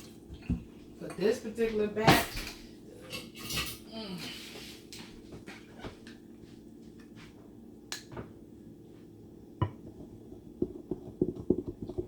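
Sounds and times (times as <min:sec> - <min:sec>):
low steady hum: 0:00.0 - 0:12.0
utensil knock: 0:09.6 - 0:10.0.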